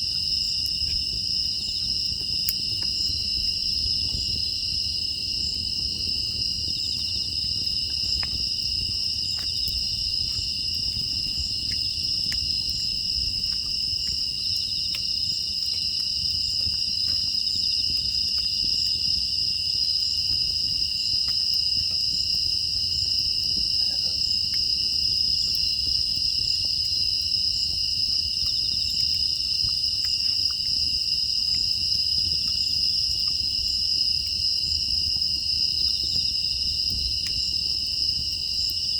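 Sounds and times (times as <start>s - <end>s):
crickets trilling: 0.0s - 38.9s
faint crackles: 5.4s - 19.2s.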